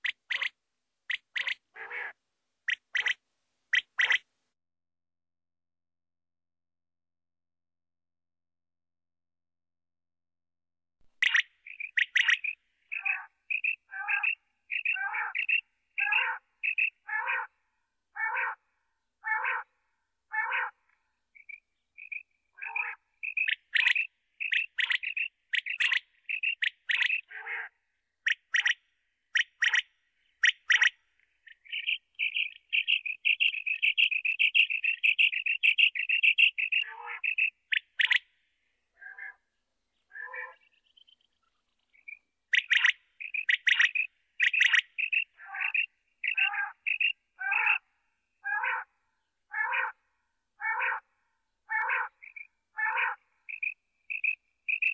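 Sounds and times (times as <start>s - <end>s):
quail calling: 0.0s - 4.2s, 11.2s - 17.6s, 18.2s - 18.6s, 19.2s - 19.7s, 20.3s - 20.8s, 21.4s - 38.3s, 39.0s - 39.4s, 40.1s - 40.8s, 42.0s - 47.8s, 48.4s - 48.9s, 49.5s - 50.0s, 50.6s - 51.1s, 51.7s - 54.9s
rapid bird trill: 0.0s - 4.3s, 11.2s - 17.5s, 21.4s - 38.4s, 40.1s - 48.9s, 51.7s - 54.9s.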